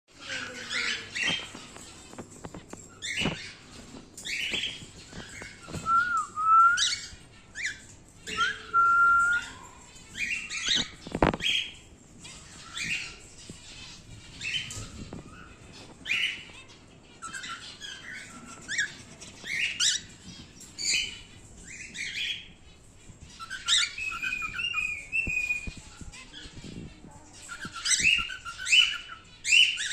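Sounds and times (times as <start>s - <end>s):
cockatiel chirping and whistling: 4.3s - 9.6s, 23.3s - 26.6s.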